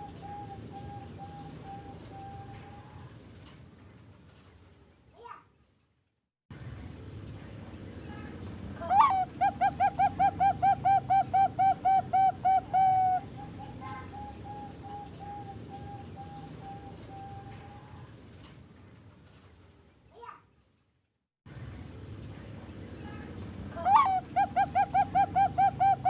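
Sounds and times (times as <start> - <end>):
dove cooing: 0.0 - 3.1, 8.8 - 18.1, 23.8 - 26.0.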